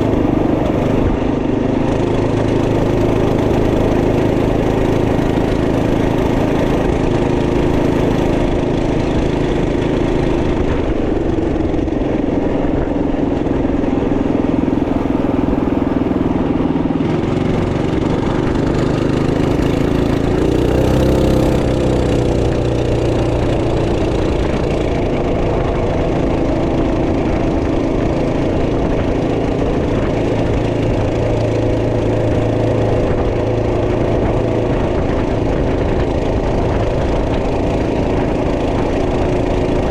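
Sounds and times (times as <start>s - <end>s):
minibike engine running: 0.0s - 39.9s.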